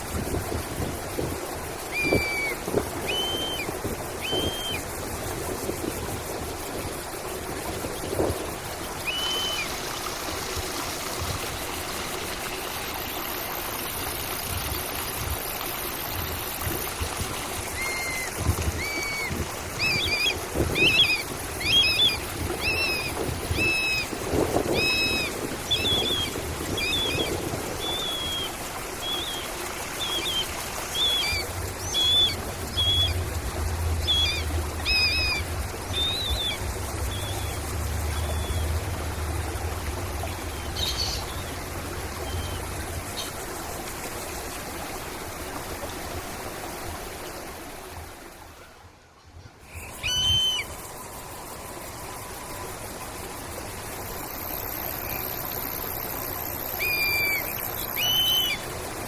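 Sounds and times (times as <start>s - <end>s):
stream water trickling: 0.0s - 59.0s
bird whistling: 2.0s - 4.8s, 9.1s - 9.7s, 50.0s - 50.7s, 56.8s - 58.6s.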